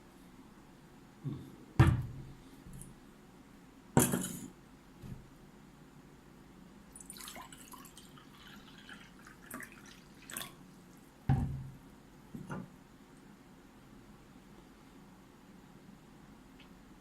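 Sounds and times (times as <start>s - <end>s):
dull thump: 1.8s - 2.3s.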